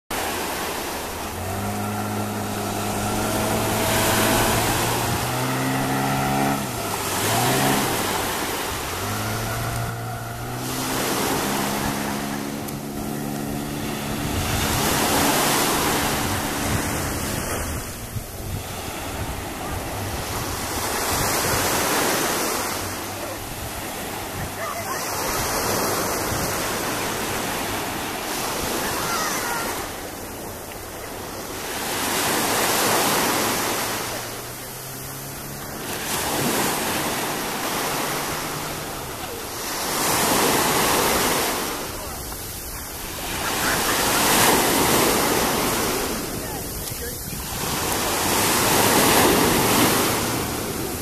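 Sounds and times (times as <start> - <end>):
rushing water: 0.0 - 51.0
rushing wind: 0.1 - 29.8
outboard motor running: 0.1 - 51.0.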